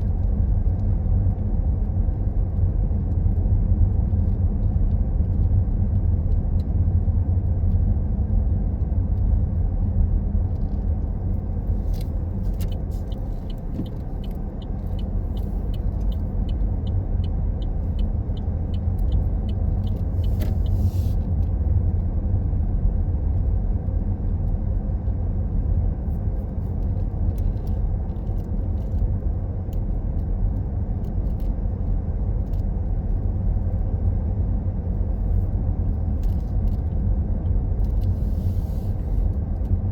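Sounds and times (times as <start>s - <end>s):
road and engine rumble: 0.0s - 39.9s
faint regular ticking: 12.6s - 20.8s.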